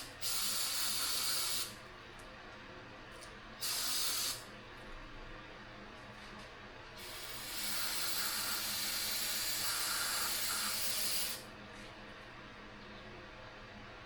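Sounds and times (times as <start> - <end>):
aerosol spray can hissing: 0.2 - 1.7, 3.6 - 4.4, 7.0 - 11.4.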